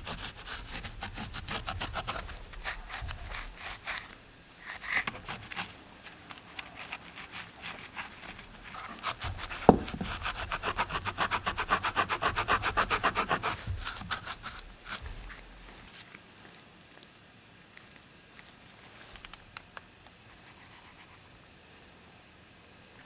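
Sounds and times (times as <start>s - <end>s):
hand sanding strokes: 6.7s - 15.2s.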